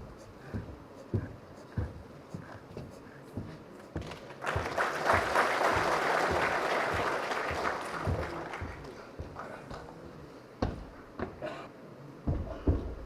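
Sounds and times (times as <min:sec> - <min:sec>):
audience applause: 0:04.0 - 0:09.9.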